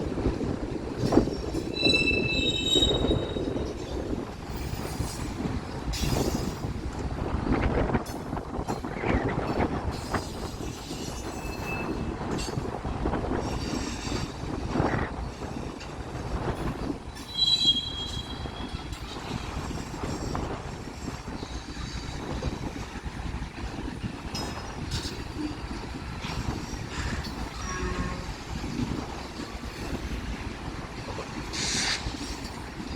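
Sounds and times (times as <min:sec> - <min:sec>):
train wheels rumbling: 0:00.0 - 0:32.9
high wheel squeals: 0:01.7 - 0:03.7, 0:17.2 - 0:18.8.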